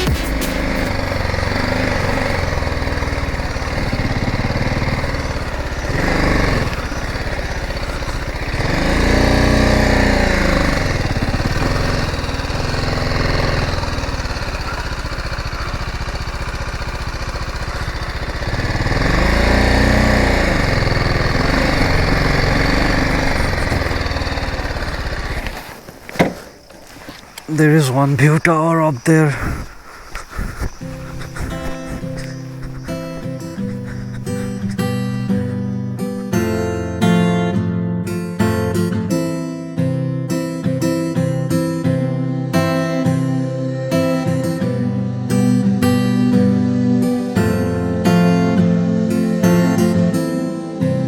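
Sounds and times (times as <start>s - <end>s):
motorcycle engine revving: 0.0s - 28.0s, 29.5s - 37.2s.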